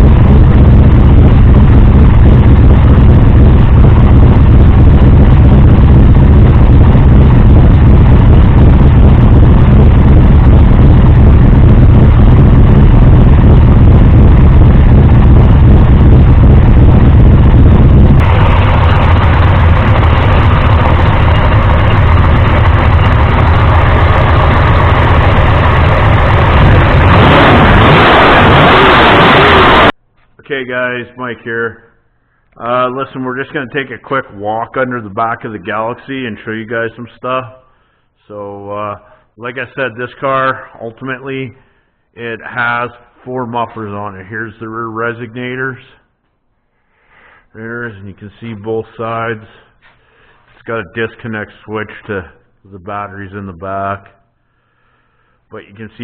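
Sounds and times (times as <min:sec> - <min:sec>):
loud vee eight engine running: 0:00.0 - 0:30.0.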